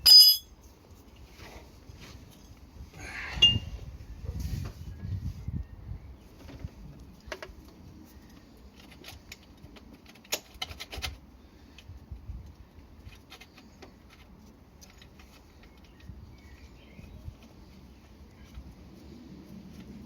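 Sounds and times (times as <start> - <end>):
metal tools clinking: 0.0 - 0.5.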